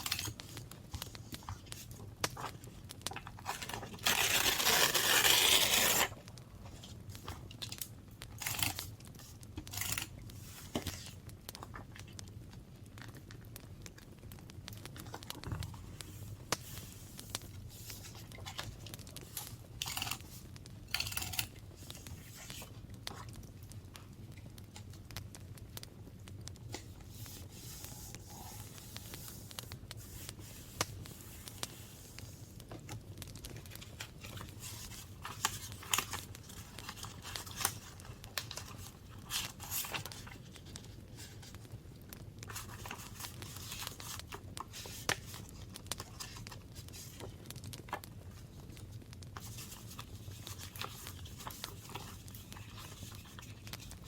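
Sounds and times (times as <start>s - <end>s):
paper tearing and crinkling: 0.0s - 1.1s, 3.2s - 6.2s, 8.4s - 11.1s, 16.6s - 22.7s, 33.6s - 41.6s, 42.5s - 47.3s, 49.4s - 54.0s.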